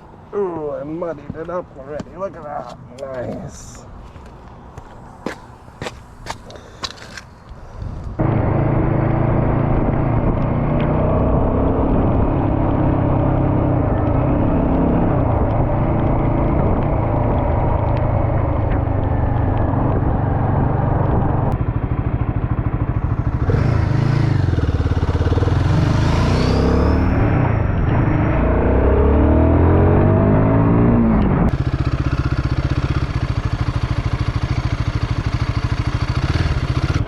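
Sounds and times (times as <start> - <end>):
motorcycle engine running: 8.2 - 28.3, 31.0 - 37.0.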